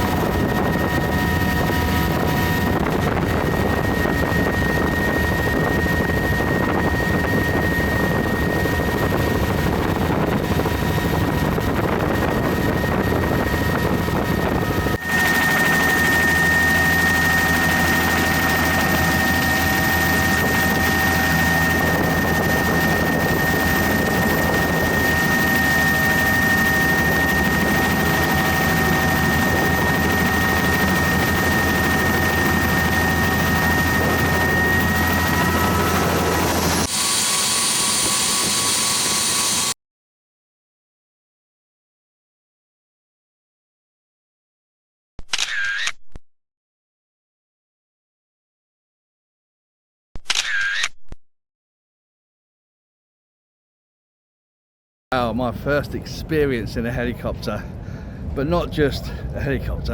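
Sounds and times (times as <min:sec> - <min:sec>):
helicopter drone: 0:00.0 - 0:39.8, 0:55.1 - 0:59.9
high whine: 0:12.6 - 0:39.8.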